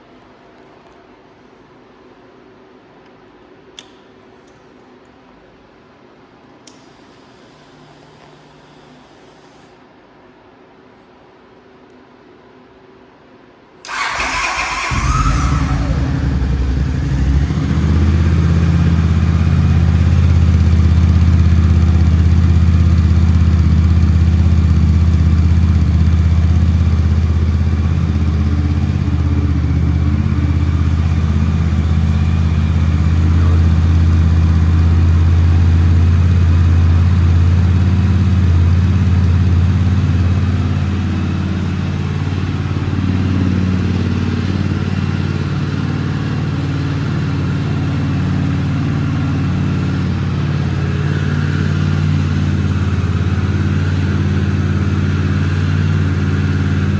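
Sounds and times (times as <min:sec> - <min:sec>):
motorcycle engine running: 0:13.9 - 0:56.9.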